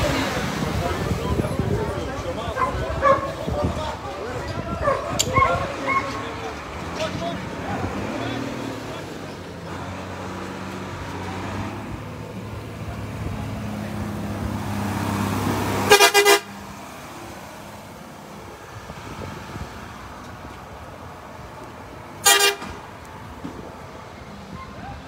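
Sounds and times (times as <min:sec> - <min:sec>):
horn toots: 0:15.8 - 0:16.6, 0:22.2 - 0:22.8.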